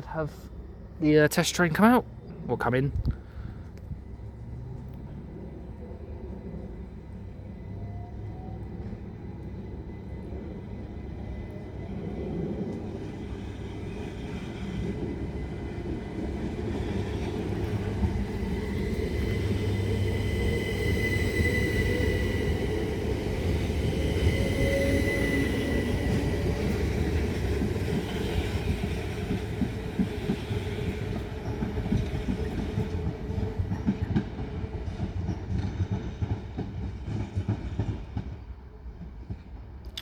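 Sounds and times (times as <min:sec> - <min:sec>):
train rumble: 0:00.0 - 0:40.0.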